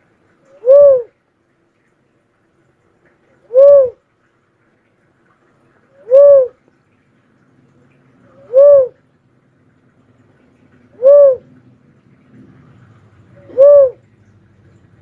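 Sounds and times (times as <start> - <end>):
dove cooing: 0.5 - 1.1, 3.4 - 4.0, 6.0 - 6.6, 8.3 - 9.0, 10.9 - 11.6, 13.3 - 14.1.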